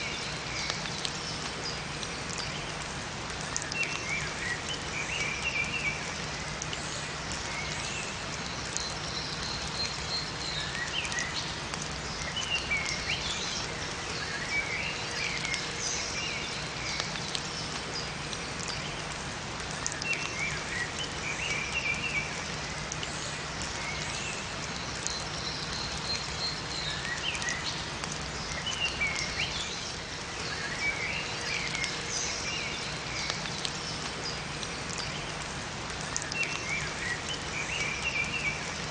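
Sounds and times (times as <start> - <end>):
rain falling in a forest: 0.0 - 38.9
small birds chirping: 19.7 - 38.9.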